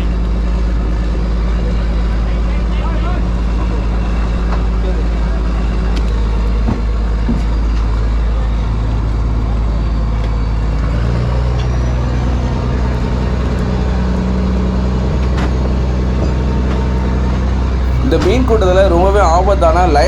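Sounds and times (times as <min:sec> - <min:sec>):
diesel engine droning: 0:00.0 - 0:20.0.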